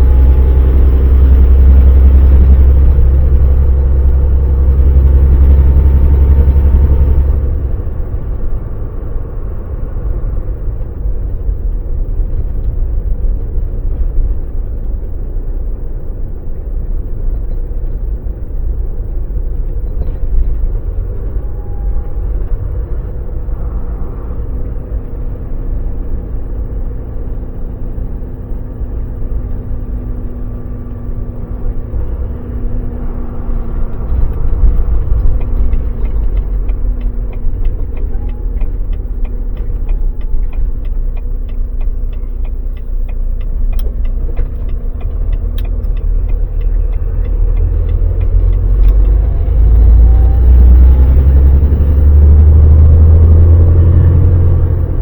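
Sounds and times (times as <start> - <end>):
truck engine rumble: 0.0 - 55.0.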